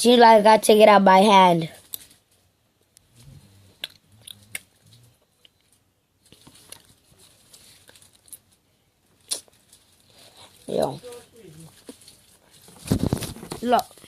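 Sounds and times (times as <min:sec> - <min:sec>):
faint low murmur: 0:02.9 - 0:05.8.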